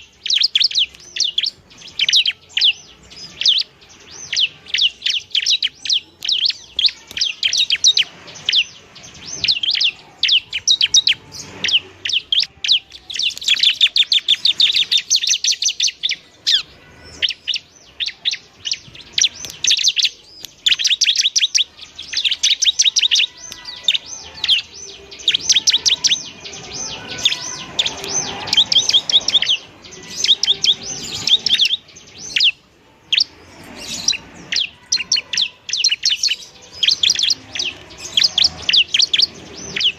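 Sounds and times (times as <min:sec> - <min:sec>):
bird singing sharp chirps: 0:00.0 - 0:39.9.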